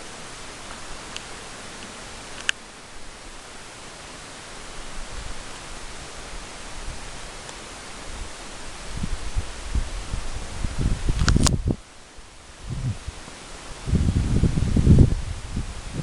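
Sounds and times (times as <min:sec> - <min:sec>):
outdoor hiss: 0:00.0 - 0:16.0
faint ticks: 0:00.7 - 0:02.6
wind rumble on microphone: 0:04.7 - 0:07.4, 0:08.0 - 0:16.0.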